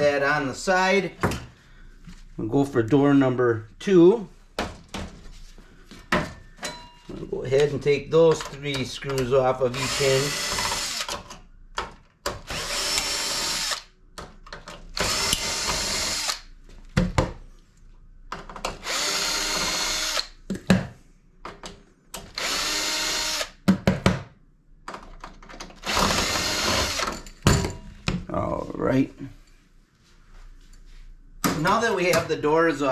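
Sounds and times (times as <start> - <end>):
power drill running: 9.7 - 11.2, 12.5 - 13.9, 15.0 - 16.5, 18.8 - 20.4, 22.3 - 23.6, 25.8 - 27.1.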